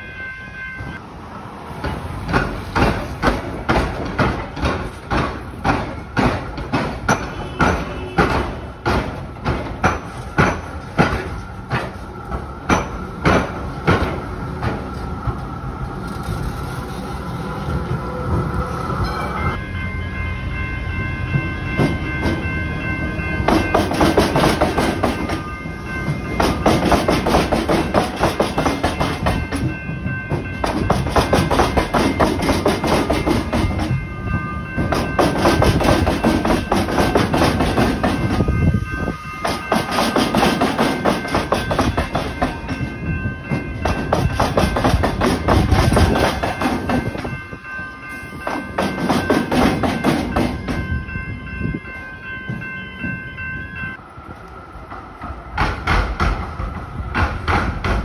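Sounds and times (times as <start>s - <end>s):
level crossing bells ringing: 0.0s - 1.0s, 19.0s - 54.1s
train wheels clattering over crossing: 1.7s - 15.4s, 21.3s - 34.1s, 34.7s - 47.5s, 48.3s - 51.0s, 54.8s - 58.0s.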